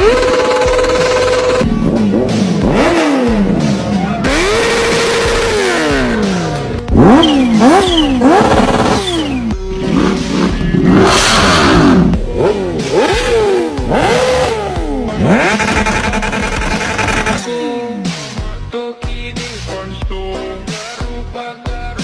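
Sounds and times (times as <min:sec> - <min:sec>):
motorcycle engines revving: 0:00.0 - 0:17.5
music: 0:00.0 - 0:22.0.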